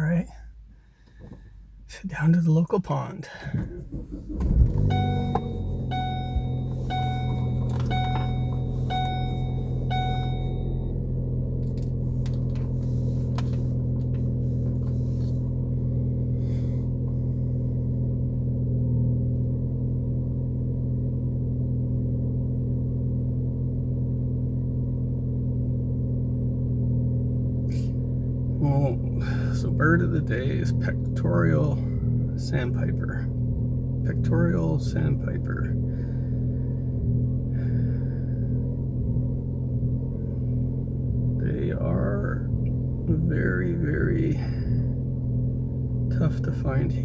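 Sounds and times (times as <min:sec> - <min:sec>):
car cabin drone: 0:00.0 - 0:47.0
dashboard warning chime: 0:04.6 - 0:11.2.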